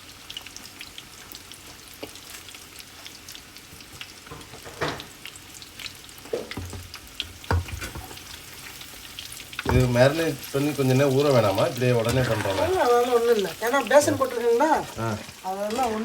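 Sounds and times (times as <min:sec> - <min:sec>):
chicken frying in hot oil: 0:00.0 - 0:16.0
utensil clattering against pan: 0:11.8 - 0:13.4.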